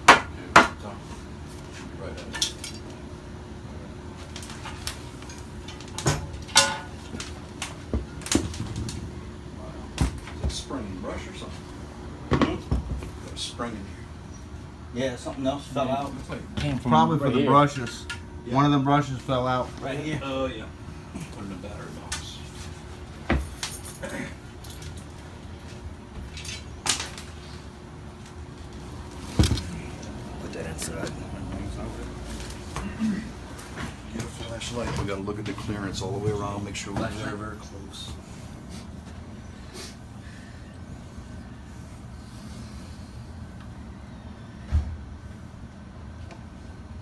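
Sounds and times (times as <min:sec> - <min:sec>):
steady low hum: 0:00.0 - 0:47.0
metal tools clunking: 0:04.5 - 0:07.4.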